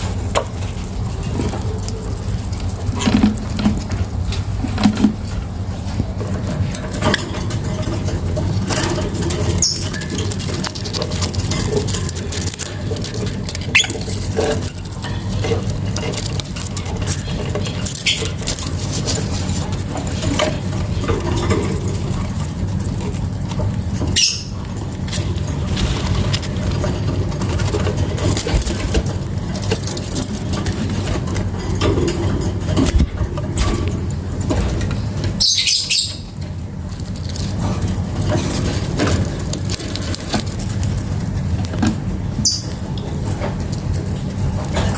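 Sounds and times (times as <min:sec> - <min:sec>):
lovebirds chirping: 0:09.6 - 0:10.1, 0:24.1 - 0:24.6, 0:35.4 - 0:36.3.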